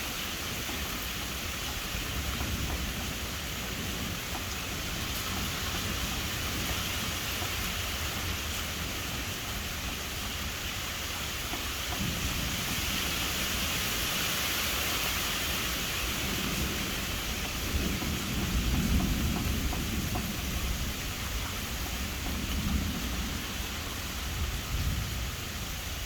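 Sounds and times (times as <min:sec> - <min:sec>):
steady rain hiss: 0:00.0 - 0:26.0
rolling thunder: 0:11.9 - 0:13.8, 0:15.7 - 0:26.0.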